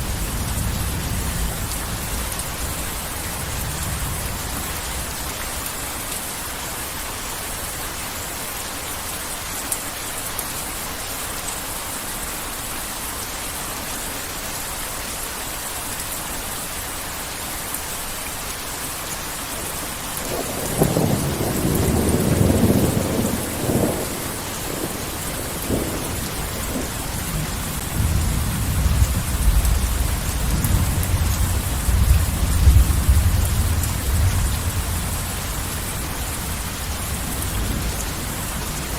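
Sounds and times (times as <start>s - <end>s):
heavy rain falling: 0.0s - 38.9s
deep rumble of thunder: 20.2s - 38.9s
rolling thunderclap: 20.2s - 38.9s.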